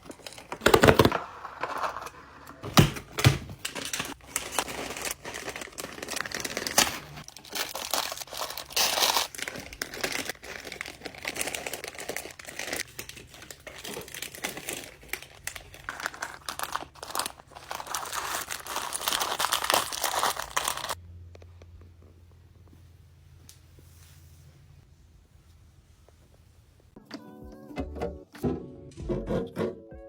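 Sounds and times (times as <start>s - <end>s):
snack packaging crinkling: 0.0s - 21.0s.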